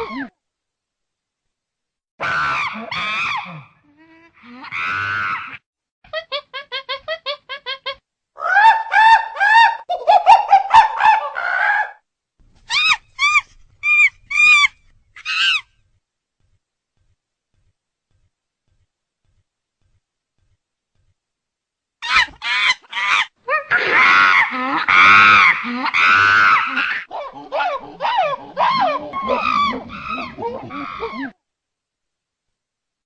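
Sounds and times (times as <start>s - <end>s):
chimpanzee hoots and screams: 2.2s - 3.7s, 7.3s - 12.0s, 12.7s - 15.7s, 22.0s - 31.4s.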